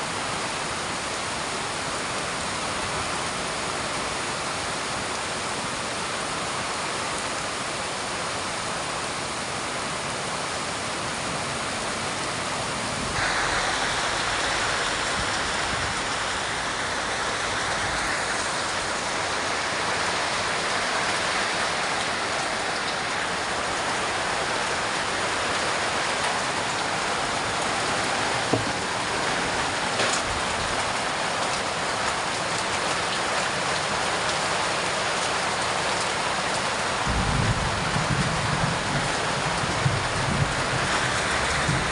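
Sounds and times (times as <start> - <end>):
heavy rain pouring: 0.0 - 41.9
sharp knocks: 28.5 - 28.9.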